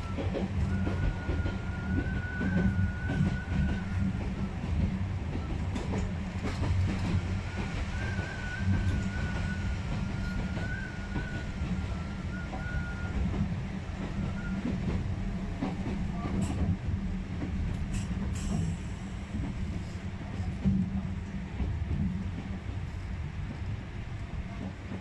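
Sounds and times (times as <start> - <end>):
train wheels and motors rumbling: 0.0 - 25.0
sharp clicks from track: 17.7 - 18.9.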